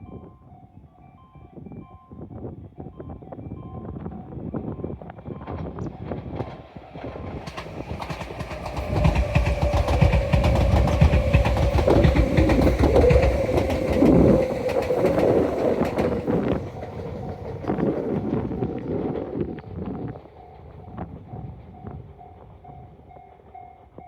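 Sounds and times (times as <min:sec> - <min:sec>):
train whine: 0:04.6 - 0:24.0
wheels clattering over rail joints: 0:05.4 - 0:23.8.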